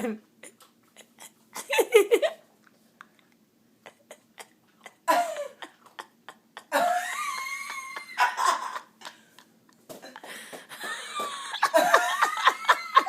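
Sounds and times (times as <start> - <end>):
person coughing: 4.0 - 5.7.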